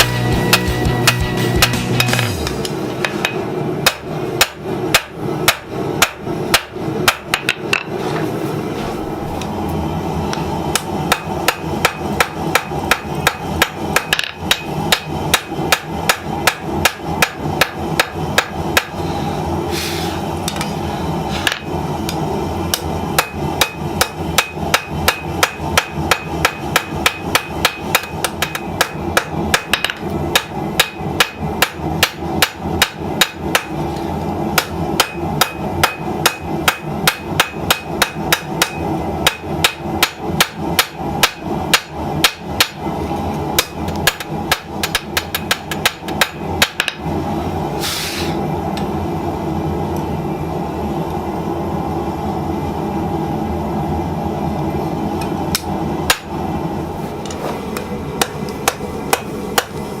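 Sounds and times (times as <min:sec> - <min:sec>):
hammer striking steel on anvil: 0:00.0 - 0:08.0, 0:10.7 - 0:19.0, 0:21.4 - 0:33.8, 0:34.5 - 0:42.9, 0:43.6 - 0:47.1, 0:55.5 - 0:56.4, 0:57.2 - 0:59.8
short hiss: 0:19.7 - 0:20.2, 0:47.8 - 0:48.4.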